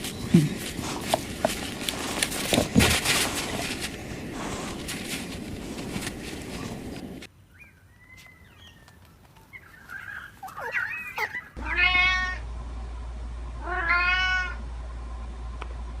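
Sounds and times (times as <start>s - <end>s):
cat meowing: 11.2s - 12.4s, 13.6s - 14.6s.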